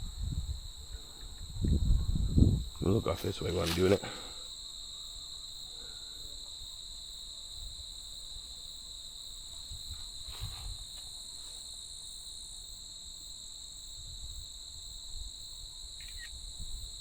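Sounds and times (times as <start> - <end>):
insects trilling: 0.0 - 17.0
faint rustles: 9.5 - 11.7.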